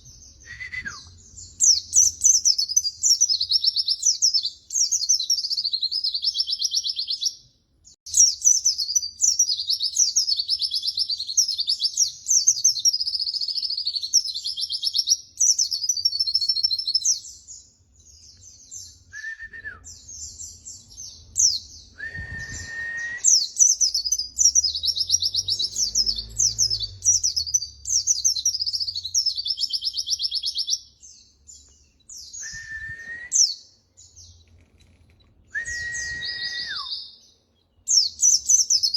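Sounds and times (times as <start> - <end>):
short lower whistled notes: 0.4 - 1.2, 19.1 - 20.0, 22.0 - 23.3, 32.2 - 33.5, 35.5 - 37.0.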